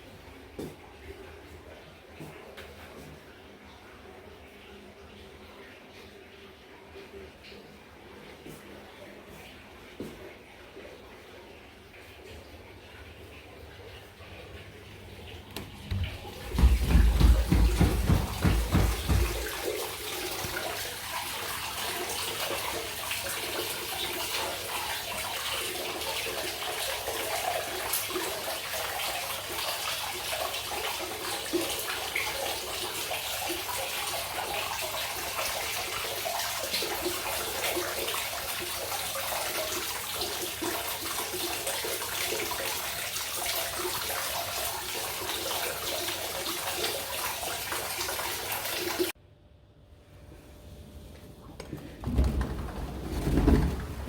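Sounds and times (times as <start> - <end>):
water pouring into a bath: 11.5 - 49.2.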